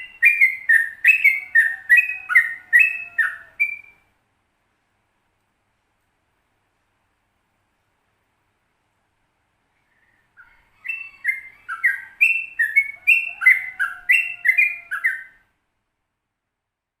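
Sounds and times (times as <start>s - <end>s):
bird singing whistled notes: 0.0s - 4.1s, 9.8s - 15.4s.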